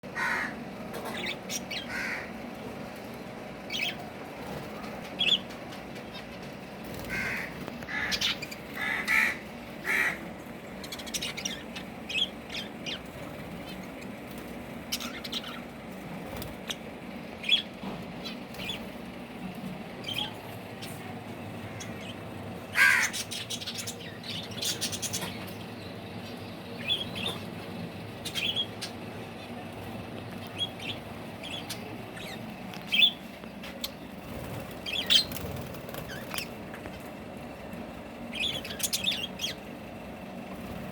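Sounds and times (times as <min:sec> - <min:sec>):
birds squawking and chirping: 0:00.0 - 0:40.9
steady low hum: 0:00.0 - 0:40.9.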